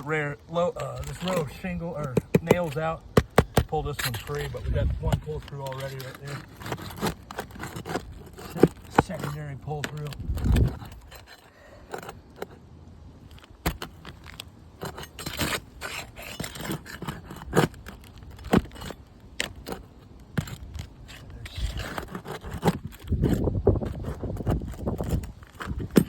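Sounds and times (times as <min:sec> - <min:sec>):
metal tool scraping shingles: 0:00.0 - 0:12.6, 0:13.2 - 0:26.0.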